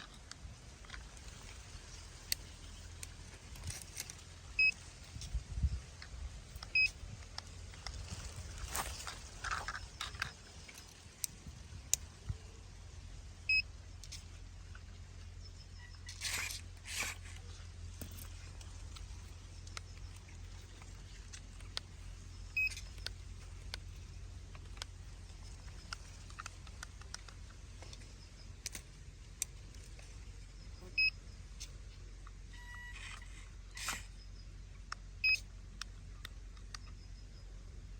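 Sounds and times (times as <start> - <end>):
low steady hum: 0.0 - 37.9
short electronic beeps: 6.8 - 7.0, 30.9 - 31.2
small clicks: 15.8 - 30.3, 31.0 - 37.4.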